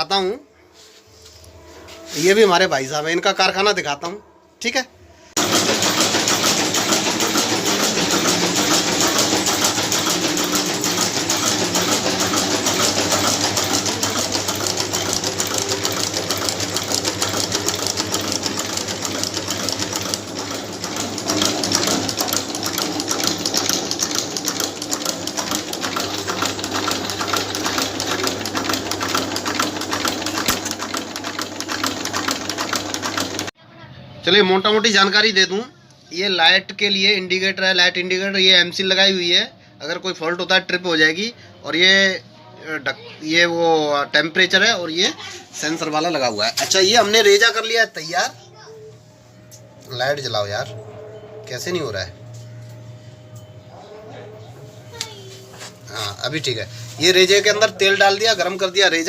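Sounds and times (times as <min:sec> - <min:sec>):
chain-making machines clattering: 0:05.4 - 0:33.5, 0:45.8 - 0:48.3.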